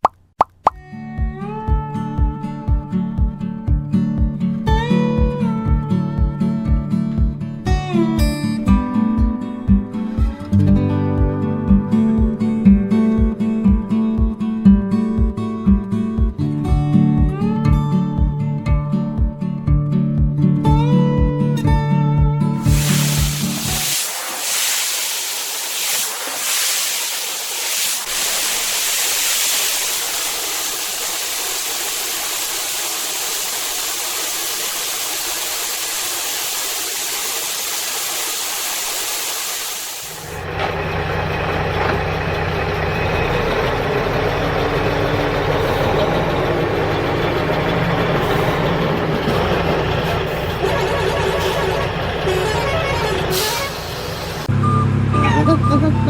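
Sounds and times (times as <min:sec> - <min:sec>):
steady hiss: 0:22.6 - 0:40.4.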